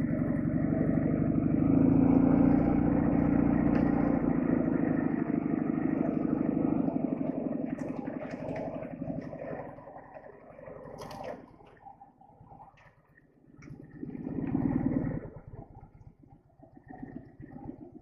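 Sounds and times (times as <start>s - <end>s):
motorcycle engine running: 0.0s - 9.8s, 13.8s - 15.9s.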